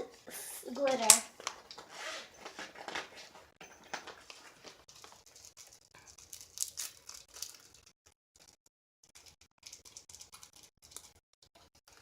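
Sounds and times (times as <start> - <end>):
plastic containers crinkling: 0.8 - 7.8.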